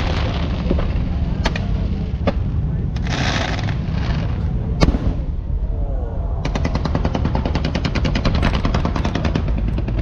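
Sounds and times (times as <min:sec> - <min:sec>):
crackling firework pops: 0:00.0 - 0:05.3
firework bang: 0:00.0 - 0:05.5
low rumble: 0:00.0 - 0:10.0.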